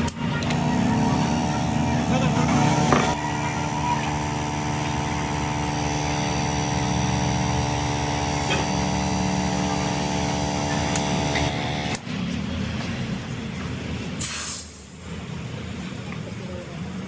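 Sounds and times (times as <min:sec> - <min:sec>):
machine motor humming: 0:00.0 - 0:12.1.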